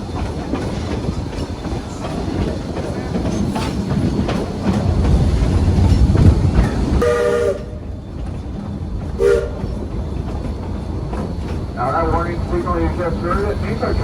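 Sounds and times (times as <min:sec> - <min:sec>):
train rumbling on rails: 0:00.0 - 0:14.0
steam locomotive whistle blasts: 0:07.0 - 0:07.8, 0:09.2 - 0:09.7.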